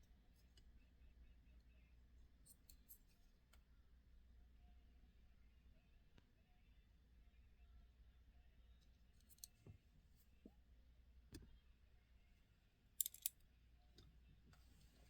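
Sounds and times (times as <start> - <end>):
model car handling clicks: 13.0 - 13.3.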